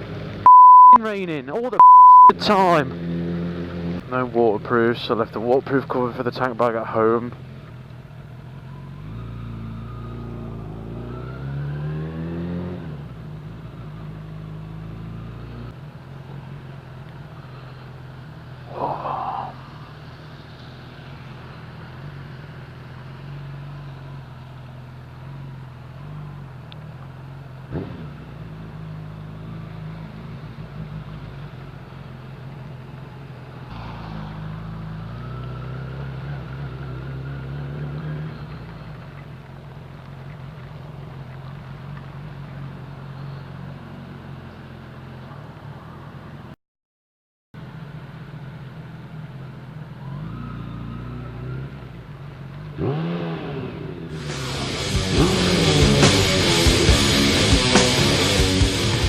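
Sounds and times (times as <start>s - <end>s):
wind and road noise: 0.0s - 46.6s, 47.6s - 59.0s
motorcycle engine: 1.8s - 6.1s, 6.8s - 45.4s, 47.8s - 59.0s.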